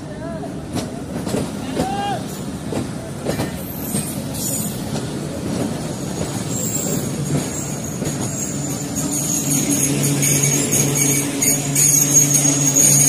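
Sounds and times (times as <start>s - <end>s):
train wheels clattering over rail joints: 0.6s - 13.0s
metallic wheel squeal: 6.4s - 13.0s.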